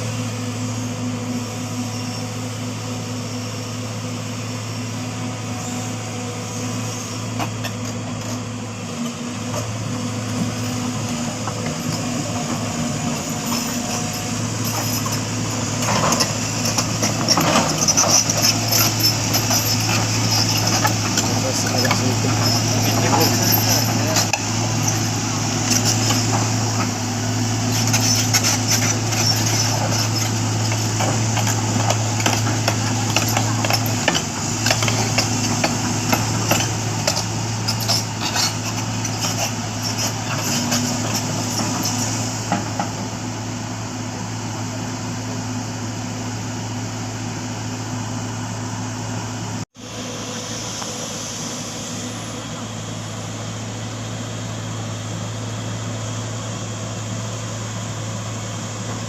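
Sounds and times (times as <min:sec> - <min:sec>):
heavy vehicle engine humming: 0:00.0 - 0:59.0
background voices: 0:19.9 - 0:26.9.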